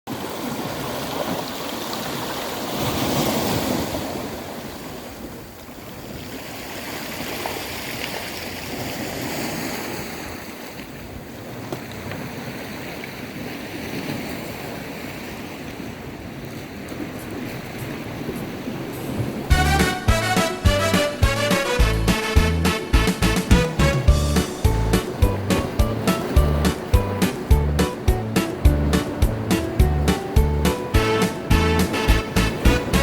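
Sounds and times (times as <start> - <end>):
wind buffeting microphone: 23.4 - 33.0.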